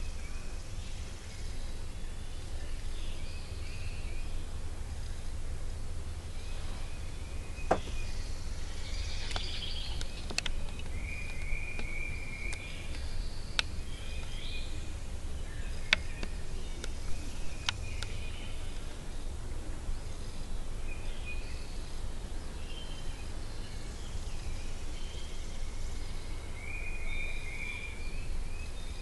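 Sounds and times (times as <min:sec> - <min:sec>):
small birds chirping: 0:00.0 - 0:29.0
steady low rumble: 0:00.0 - 0:29.0
sharp clicks: 0:09.2 - 0:11.9.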